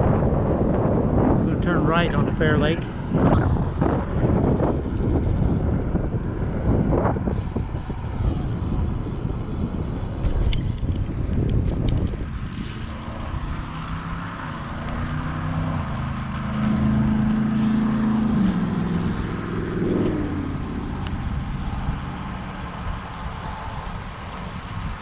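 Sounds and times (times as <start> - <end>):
wind rumble on microphone: 0.0 - 25.0
vehicle engine passing by: 12.4 - 25.0.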